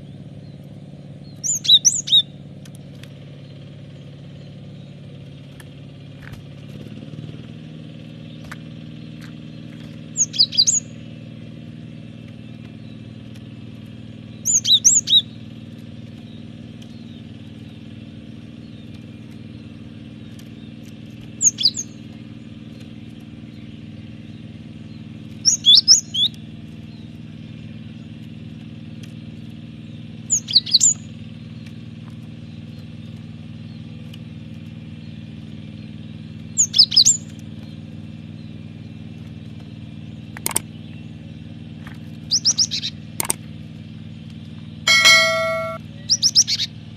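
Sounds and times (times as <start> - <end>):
bird chirping: 1.2 - 2.3, 9.8 - 10.8, 14.4 - 15.2, 18.6 - 22.8, 42.3 - 43.0, 44.9 - 46.7
steady low hum: 44.9 - 45.8.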